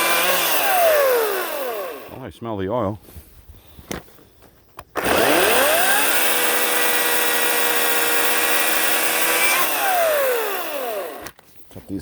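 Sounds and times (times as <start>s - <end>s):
electric chainsaw running: 0.0s - 2.2s, 5.0s - 11.4s.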